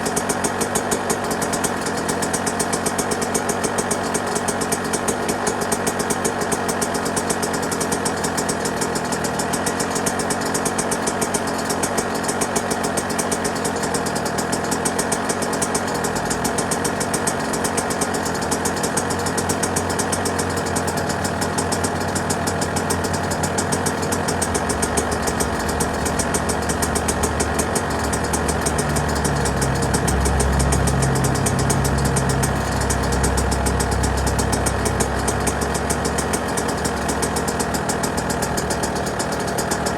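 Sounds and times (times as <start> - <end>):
two-stroke engine idling: 0.0 - 39.9
deep low rumble: 22.8 - 36.4.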